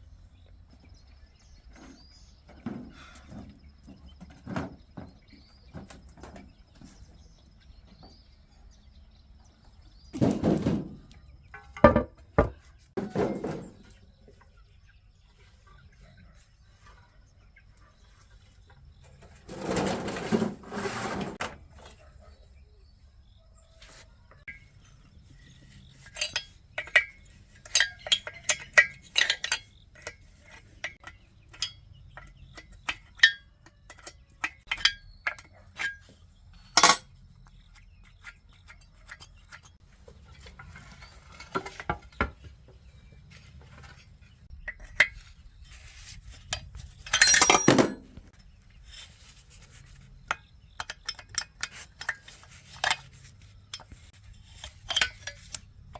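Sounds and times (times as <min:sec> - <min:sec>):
metal tools clinking: 0:24.5 - 0:37.2, 0:43.4 - 0:48.5, 0:50.3 - 0:55.7.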